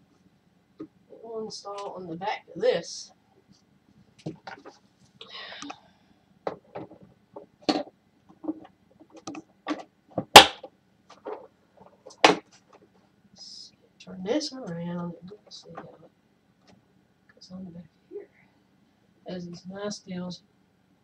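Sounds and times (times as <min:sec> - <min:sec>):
plastic parts clicking and knocking: 0:06.4 - 0:12.9.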